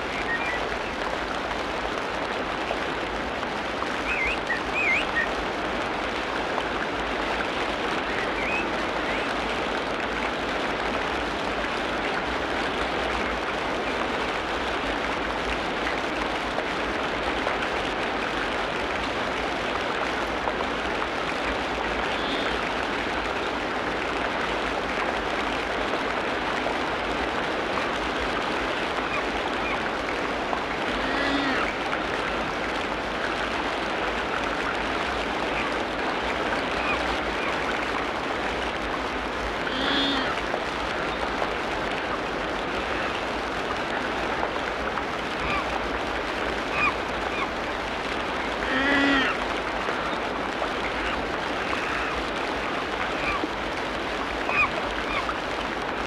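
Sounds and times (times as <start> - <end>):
dense steady hiss: 0.0 - 56.0
steady rain falling: 0.0 - 56.0
faint animal calls: 30.9 - 31.8, 39.7 - 40.4, 48.6 - 49.4.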